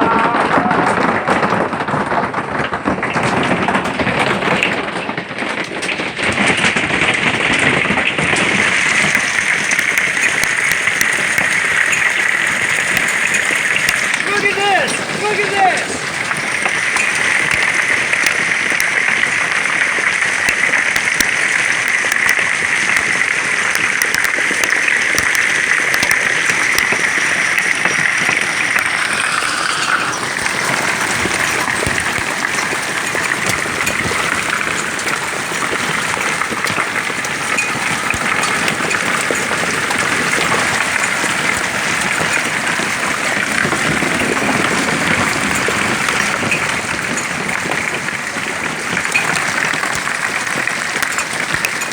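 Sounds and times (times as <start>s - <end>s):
heavy hail pelting down: 0.0s - 51.9s.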